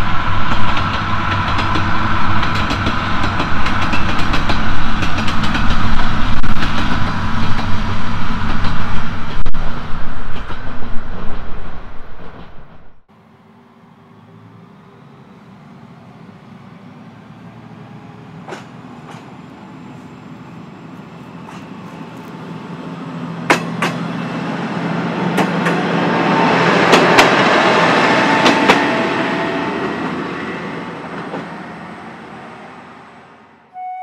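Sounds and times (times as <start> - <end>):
train wheels clacking over rail joints: 0.4 - 7.8, 18.4 - 19.3, 23.4 - 24.0, 25.3 - 25.8, 26.8 - 27.5.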